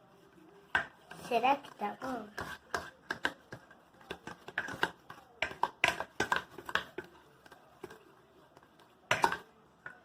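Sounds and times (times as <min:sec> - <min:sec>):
utensil tapping a container: 0:02.4 - 0:08.0.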